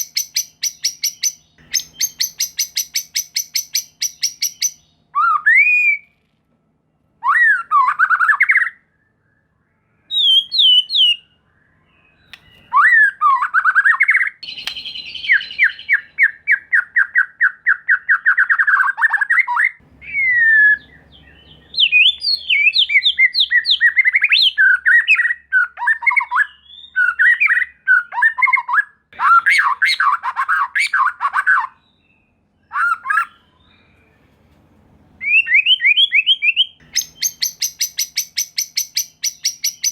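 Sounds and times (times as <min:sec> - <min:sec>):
bird singing varied phrases: 0:00.0 - 0:34.3, 0:35.0 - 0:39.9.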